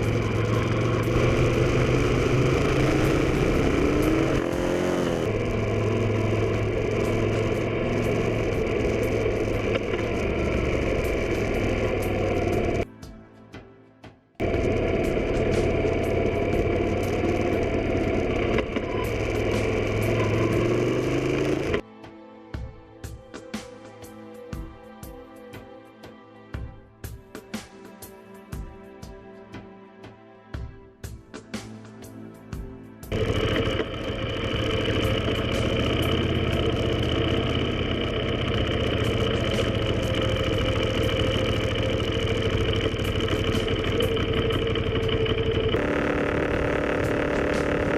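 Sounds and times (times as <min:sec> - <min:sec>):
motorcycle engine revving: 0:00.0 - 0:12.8, 0:14.4 - 0:21.8, 0:33.1 - 0:47.9.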